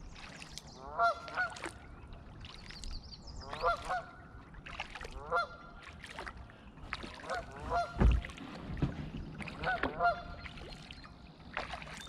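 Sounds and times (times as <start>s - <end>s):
geese honking: 0.8s - 1.6s, 5.2s - 5.6s, 7.3s - 8.0s, 9.6s - 10.4s
low thump: 7.9s - 9.2s.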